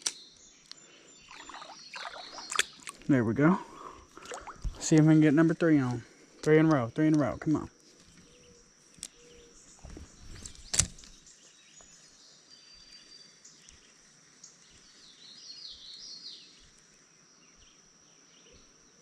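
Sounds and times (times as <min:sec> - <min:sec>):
small birds chirping: 0:00.0 - 0:19.0
sharp click: 0:10.4 - 0:11.2.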